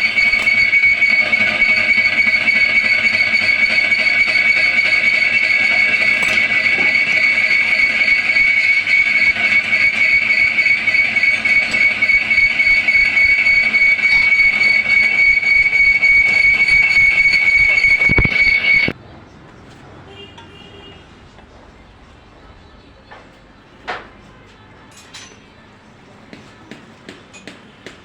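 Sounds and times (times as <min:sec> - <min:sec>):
power tool grinding metal: 0:00.0 - 0:18.9.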